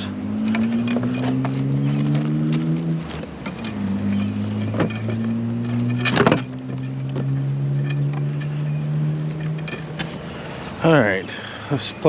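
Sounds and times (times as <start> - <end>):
vehicle engine idling: 0.0 - 12.0
clatter of handled items: 0.5 - 8.2.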